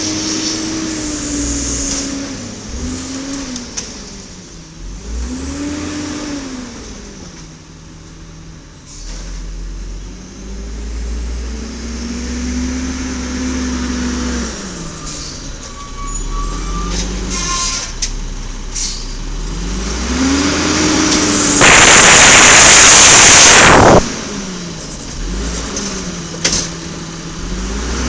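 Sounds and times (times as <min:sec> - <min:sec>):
garbage truck engine revving: 0:00.0 - 0:07.5, 0:08.9 - 0:28.0
air brake hiss: 0:08.9 - 0:09.4, 0:18.7 - 0:19.2.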